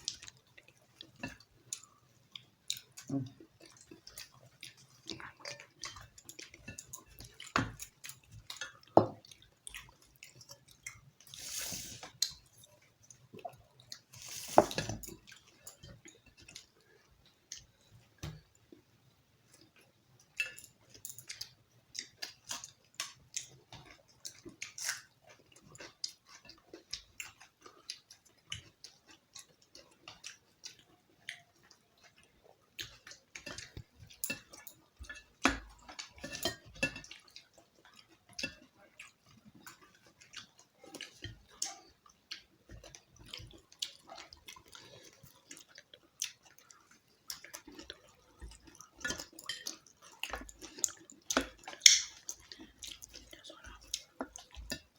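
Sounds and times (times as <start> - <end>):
person chewing food: 0.0 - 54.9.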